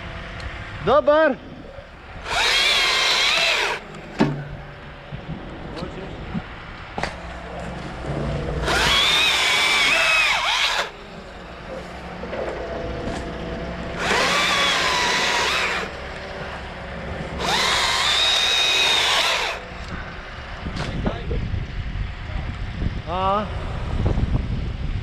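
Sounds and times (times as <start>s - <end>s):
electric chainsaw cutting: 2.2s - 4.4s, 8.5s - 12.0s, 13.9s - 16.6s, 17.3s - 20.0s.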